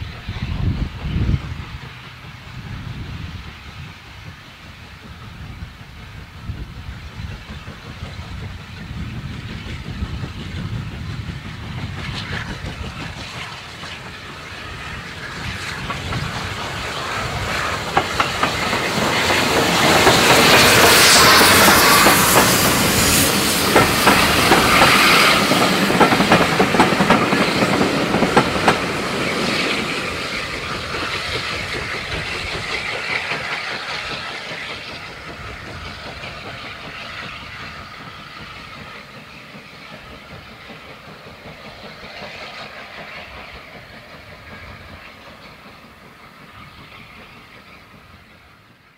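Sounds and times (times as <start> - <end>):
train rolling past: 0.0 - 48.9
wheels clicking over rail joints: 11.8 - 47.4.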